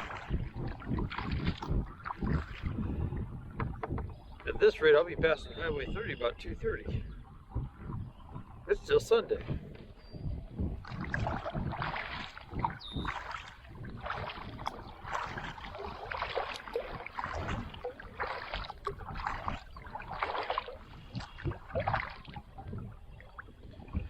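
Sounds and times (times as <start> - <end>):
paddle splashing in river water: 0.0 - 5.0, 10.7 - 24.0.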